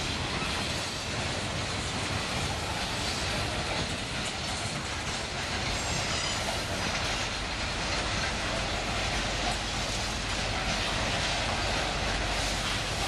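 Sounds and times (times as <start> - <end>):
freight cars rumbling and rattling: 0.0 - 13.0.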